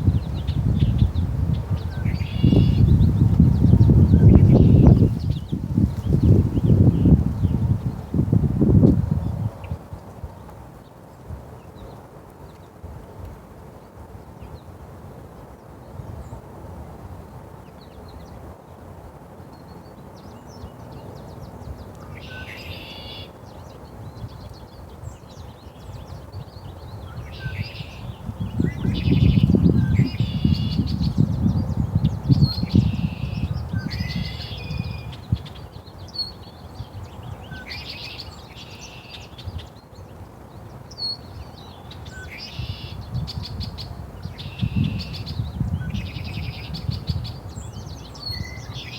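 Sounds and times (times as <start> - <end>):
songbird singing: 0.0 - 12.8, 19.5 - 48.9.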